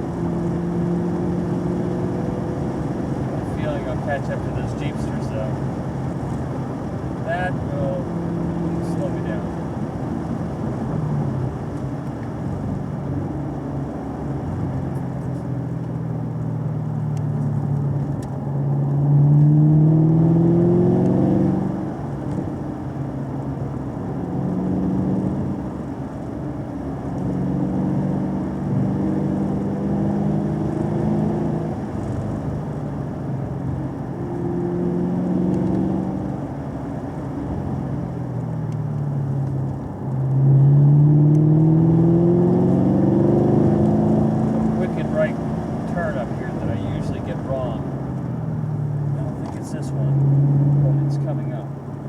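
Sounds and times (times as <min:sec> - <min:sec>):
car engine accelerating: 0:00.0 - 0:52.0.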